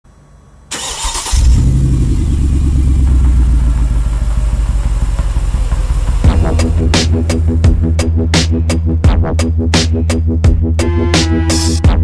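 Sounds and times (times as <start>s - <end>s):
car engine idling: 0.7s - 11.1s
electronic music with heavy beat: 5.8s - 12.0s.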